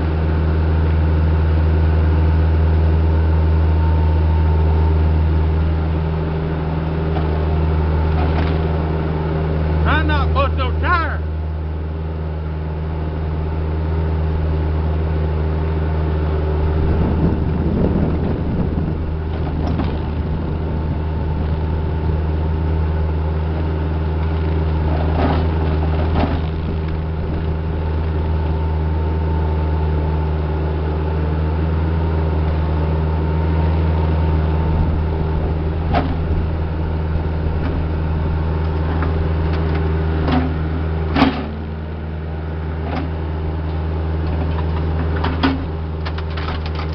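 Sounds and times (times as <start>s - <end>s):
diesel engine droning: 0.0s - 46.9s
machine clanks and knocks: 40.3s - 41.6s, 44.3s - 46.9s.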